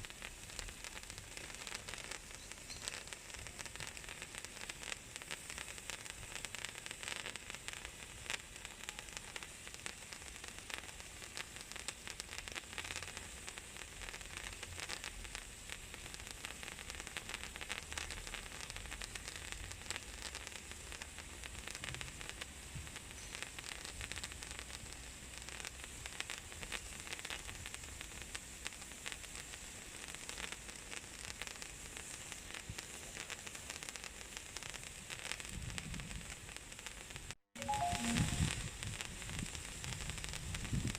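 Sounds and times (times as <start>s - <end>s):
sparklers crackling and fizzing: 0.0s - 40.9s.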